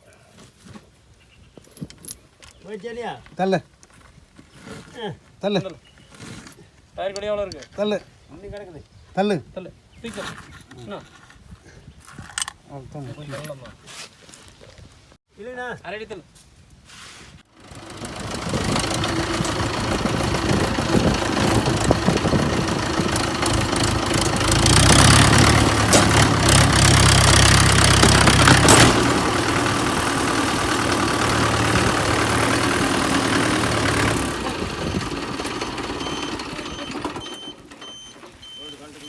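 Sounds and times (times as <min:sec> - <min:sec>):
tractor diesel engine revving: 0:17.5 - 0:38.7.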